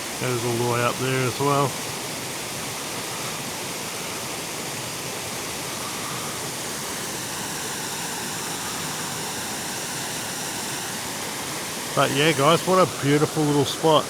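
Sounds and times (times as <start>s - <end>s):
water pouring over waterfall: 0.0s - 14.0s.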